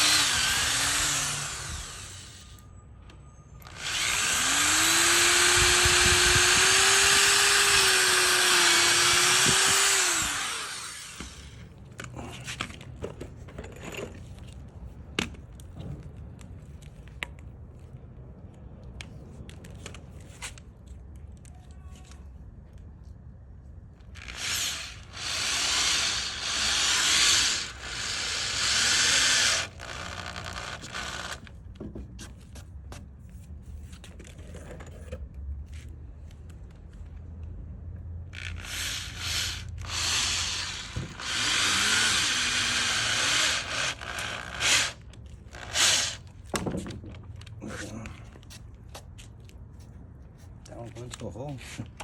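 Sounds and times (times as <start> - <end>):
power drill drilling into wood: 0.0 - 2.6, 3.6 - 11.5, 24.2 - 31.5, 38.4 - 45.0, 45.6 - 46.2.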